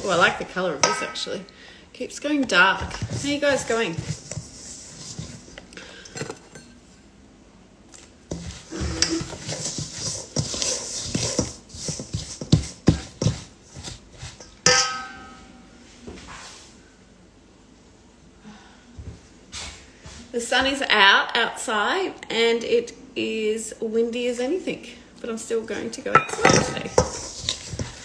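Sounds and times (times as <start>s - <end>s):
utensils and dishes clinking: 0.0s - 1.4s, 14.5s - 15.6s, 26.1s - 28.0s
ringing metal clang: 14.7s - 15.7s, 26.2s - 26.9s.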